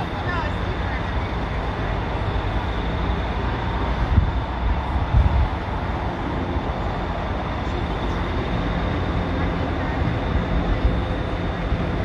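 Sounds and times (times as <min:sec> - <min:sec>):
heavy engine rumbling: 0:00.0 - 0:12.0.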